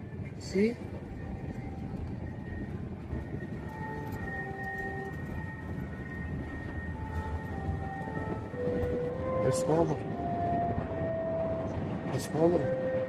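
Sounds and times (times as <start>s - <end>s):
train rumbling past: 0.0s - 13.0s.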